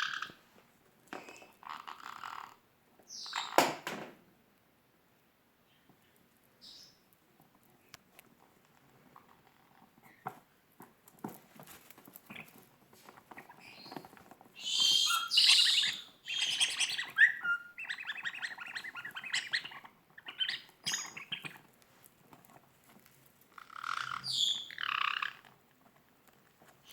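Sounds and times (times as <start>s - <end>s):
parrots squawking: 0.0s - 0.4s, 1.6s - 2.6s, 14.6s - 21.6s, 23.6s - 25.5s
soft taps and scratches: 7.2s - 14.6s.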